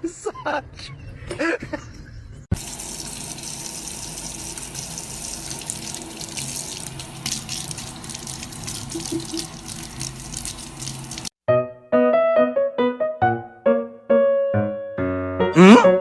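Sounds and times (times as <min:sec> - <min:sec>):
water running: 0:02.5 - 0:11.4.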